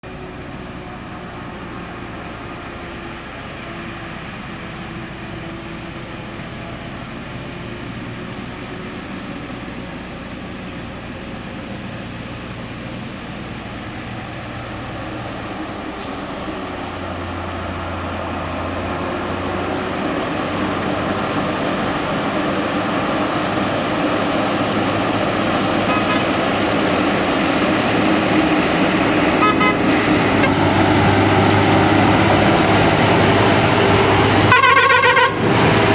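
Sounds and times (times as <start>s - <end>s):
truck engine running: 0.0s - 35.9s
horn toots: 25.8s - 26.4s, 29.3s - 30.6s, 34.5s - 35.6s.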